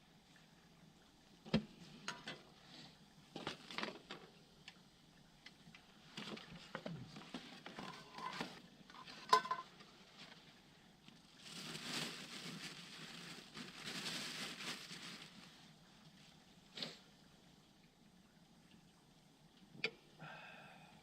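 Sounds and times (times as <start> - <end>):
metal cookware clinking and scraping: 7.8 - 9.8.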